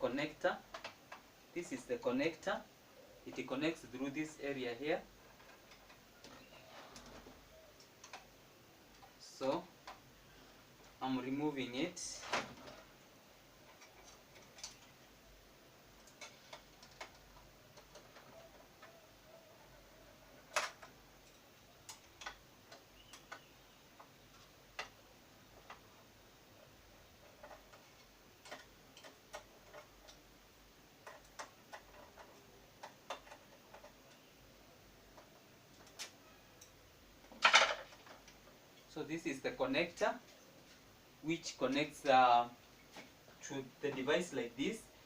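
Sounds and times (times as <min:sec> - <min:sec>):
small plastic clicks: 0:05.4 - 0:08.3, 0:20.4 - 0:25.9, 0:27.3 - 0:30.2, 0:31.0 - 0:34.3, 0:35.1 - 0:36.8.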